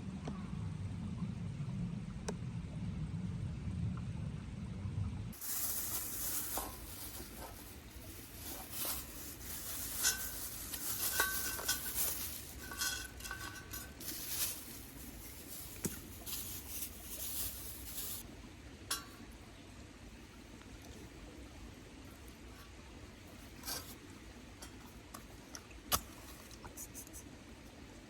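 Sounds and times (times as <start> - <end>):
short metallic rings: 6.3 - 15.3
steel parts clinking together: 6.5 - 15.2.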